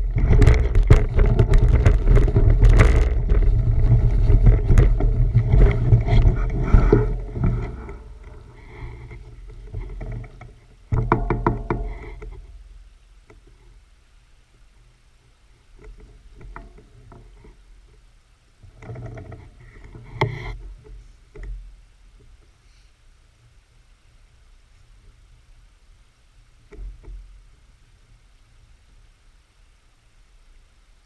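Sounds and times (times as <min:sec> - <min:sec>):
wind buffeting microphone: 0:00.0 - 0:09.2
rattling clicks and knocks: 0:00.0 - 0:12.4.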